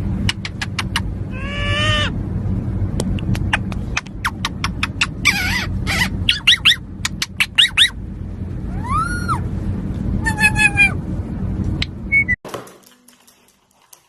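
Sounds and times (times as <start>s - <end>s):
parrot chirping and whistling: 4.2s - 8.0s, 11.8s - 12.4s.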